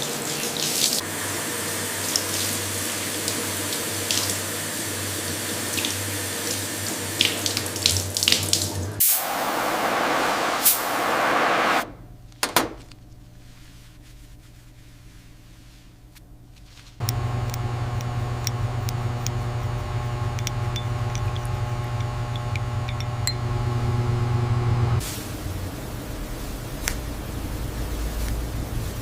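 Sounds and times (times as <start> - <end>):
switch click: 17.0 - 23.3
small electric appliance humming: 17.0 - 25.0
tap water running: 17.0 - 25.0.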